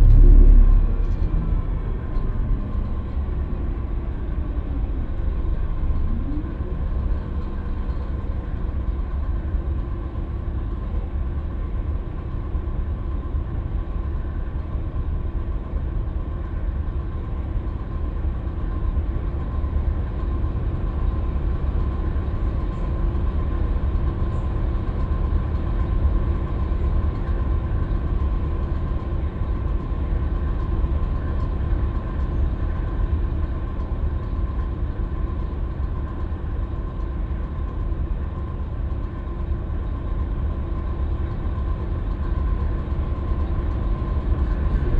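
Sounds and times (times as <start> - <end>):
road noise: 0.0 - 6.3
bus diesel engine rumbling: 0.0 - 44.9.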